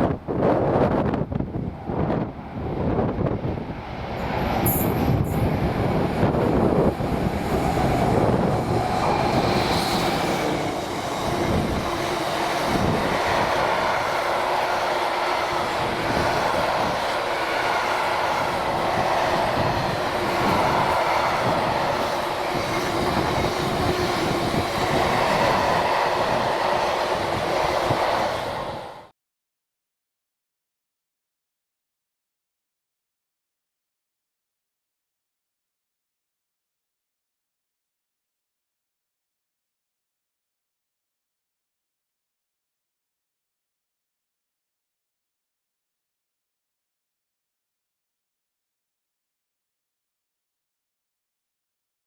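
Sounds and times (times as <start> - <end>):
train wheels rumbling on rail: 0.0 - 29.1.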